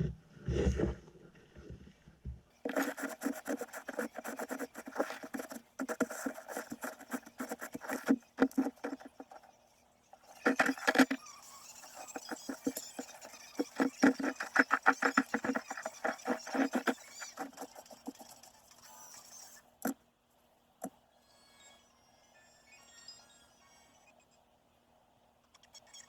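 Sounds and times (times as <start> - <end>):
wood clicking and scraping: 2.7 - 9.4, 10.4 - 11.2.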